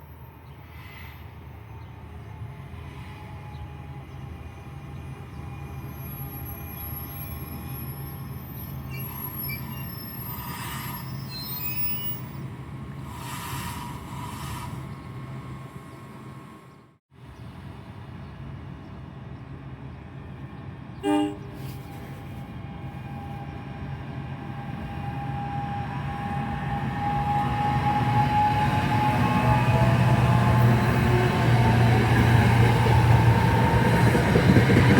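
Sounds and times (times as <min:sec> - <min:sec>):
train running on rails: 0:00.0 - 0:34.9
high wheel squeal: 0:06.1 - 0:12.5.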